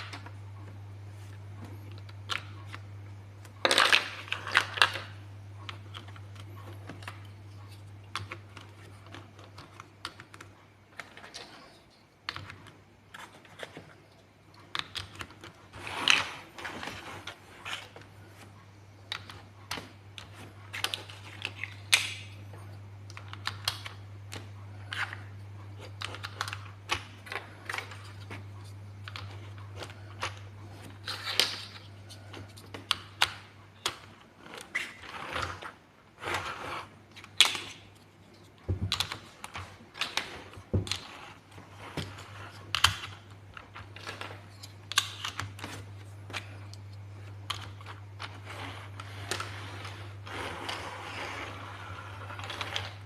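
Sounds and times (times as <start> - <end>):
low steady hum: 0.0 - 53.0
pieces rustling: 0.0 - 53.0
plastic blocks clicking: 3.6 - 7.3, 14.6 - 18.0, 19.1 - 22.3, 23.1 - 28.4, 38.8 - 53.0.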